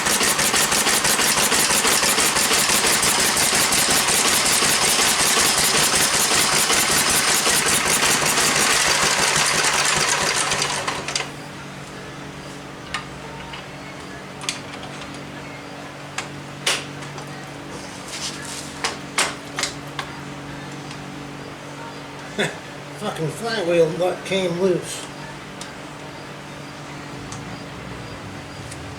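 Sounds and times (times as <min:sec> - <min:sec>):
small engine running fast: 0:00.0 - 0:11.3.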